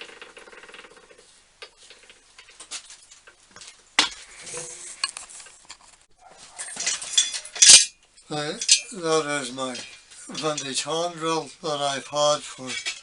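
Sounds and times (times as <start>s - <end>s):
metallic ring: 6.6s - 8.0s
metallic clinks and knocks: 6.6s - 9.0s.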